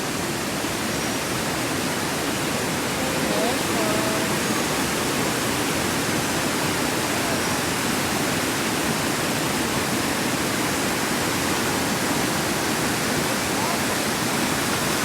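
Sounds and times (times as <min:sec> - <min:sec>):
rushing flowing water: 0:00.0 - 0:15.0.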